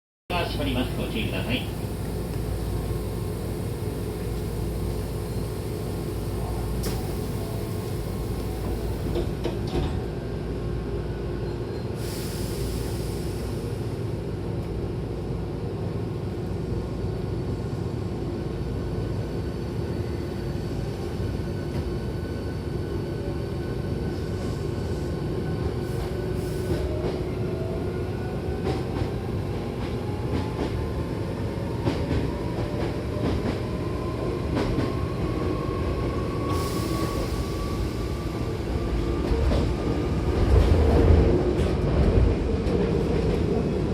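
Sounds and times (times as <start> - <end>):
electric train rumbling: 0.3 - 43.9.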